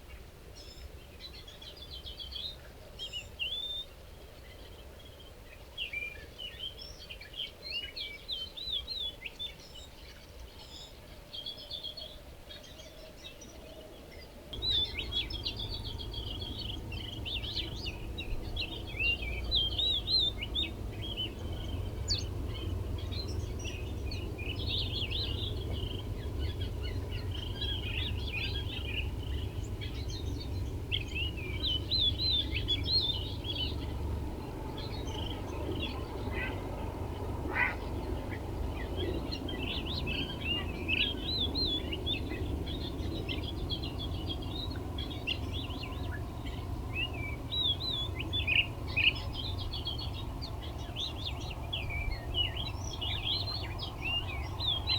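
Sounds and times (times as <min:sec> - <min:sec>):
steady low rumble: 0:14.6 - 0:54.9.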